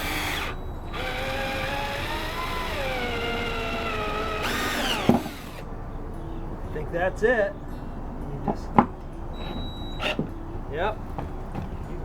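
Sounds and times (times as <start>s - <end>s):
power drill whine: 0.0s - 5.6s.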